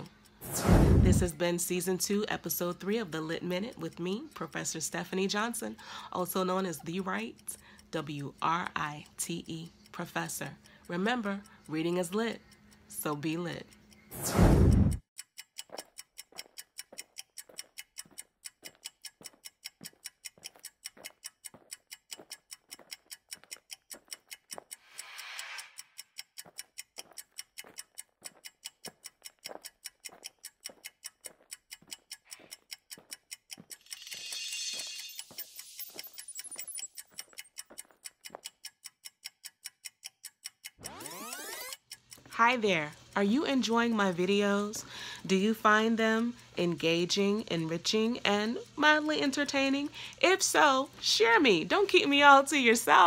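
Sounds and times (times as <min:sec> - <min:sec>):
clock ticking: 0:00.0 - 0:53.0
soft swell: 0:24.9 - 0:25.9.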